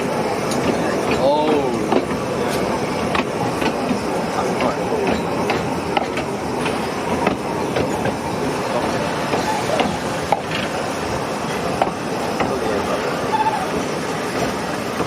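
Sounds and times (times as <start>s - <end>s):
train rumbling: 0.0s - 15.0s
sharp clicks and knocks: 0.5s - 4.0s, 4.6s - 8.2s, 11.8s - 12.6s.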